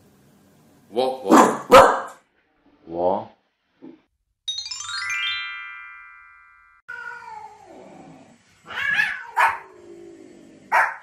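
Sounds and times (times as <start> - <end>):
dog barking sharply: 1.3 - 2.2, 9.4 - 9.6, 10.7 - 11.0
cat meowing: 6.9 - 7.8, 8.6 - 9.6.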